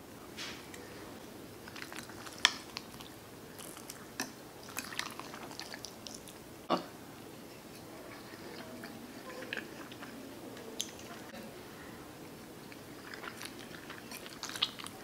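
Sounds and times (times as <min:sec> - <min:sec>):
chewing with wet mouth clicks: 0:01.6 - 0:06.4, 0:07.6 - 0:11.4, 0:12.6 - 0:15.0.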